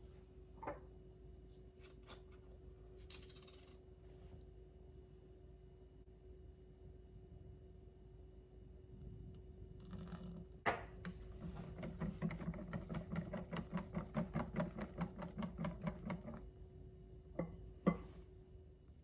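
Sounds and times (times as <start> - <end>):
hand whisking in bowl: 11.4 - 16.4.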